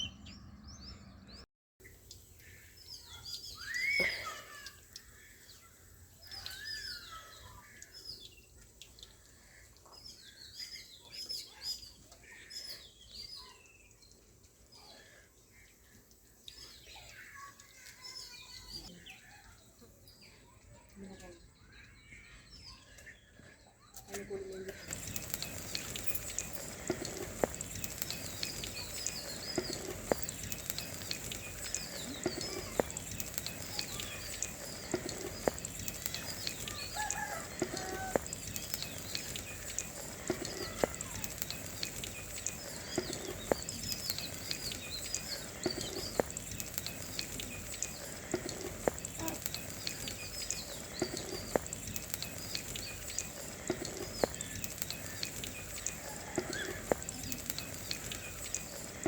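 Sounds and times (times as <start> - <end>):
small birds chirping: 0.0 - 59.0
scattered clicks: 24.0 - 59.0
steady high hiss: 24.8 - 59.0.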